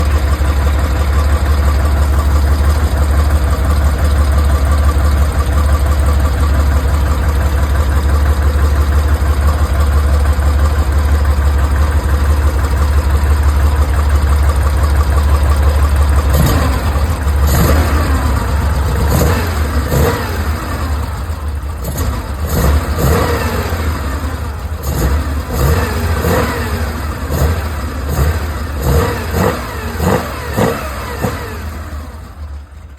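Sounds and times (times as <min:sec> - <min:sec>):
car engine idling: 0:00.0 - 0:32.9
car engine revving: 0:16.2 - 0:32.2.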